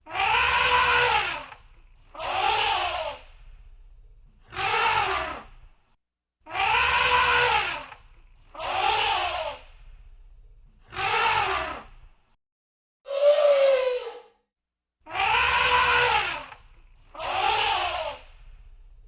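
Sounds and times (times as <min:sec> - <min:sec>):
elephant trumpeting: 0:00.1 - 0:01.5, 0:06.5 - 0:07.9, 0:15.2 - 0:16.5
low rumble: 0:03.3 - 0:04.4, 0:09.7 - 0:10.8.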